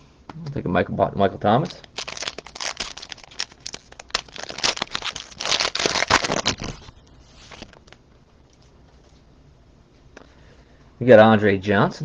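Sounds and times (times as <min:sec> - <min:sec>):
plastic wrapper crinkling and tearing: 0:01.6 - 0:08.7
cards being handled: 0:01.7 - 0:08.0.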